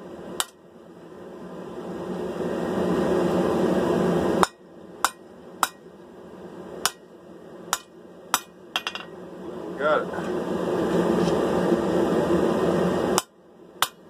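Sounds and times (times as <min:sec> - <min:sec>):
hammer striking blade on anvil: 0:04.4 - 0:05.8, 0:06.8 - 0:07.0, 0:07.7 - 0:09.1, 0:13.2 - 0:14.0.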